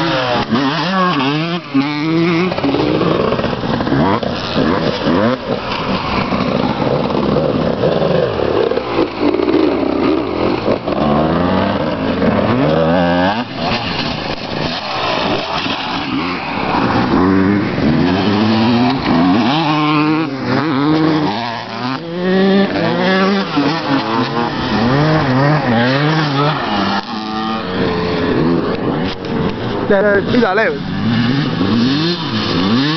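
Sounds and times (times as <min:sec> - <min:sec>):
motocross bike engines revving: 0:00.0 - 0:32.9.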